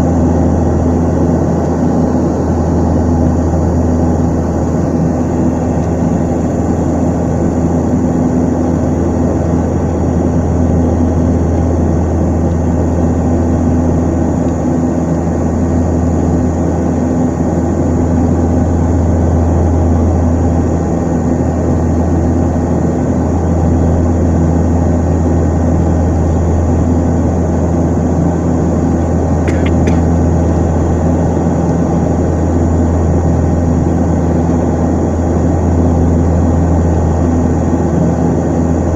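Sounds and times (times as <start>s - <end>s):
turboprop engines droning: 0.0s - 38.9s.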